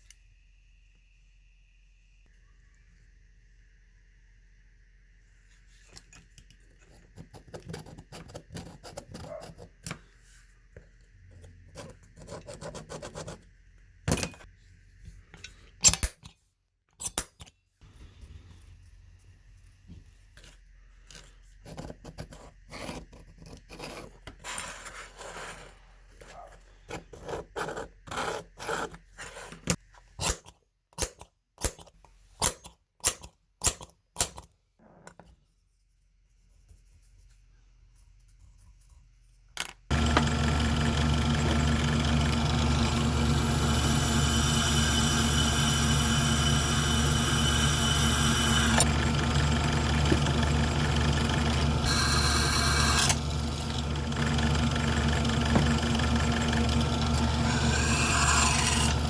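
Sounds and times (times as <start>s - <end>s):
power tool motor humming: 39.9s - 59.0s.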